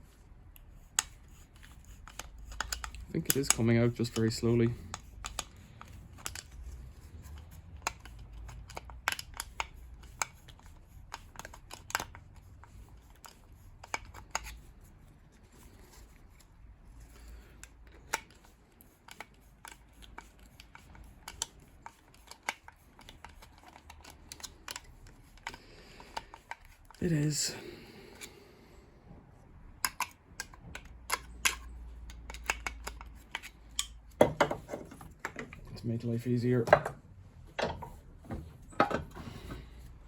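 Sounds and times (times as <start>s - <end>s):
hand tools clicking and tapping: 0.9s - 6.6s, 29.8s - 35.6s.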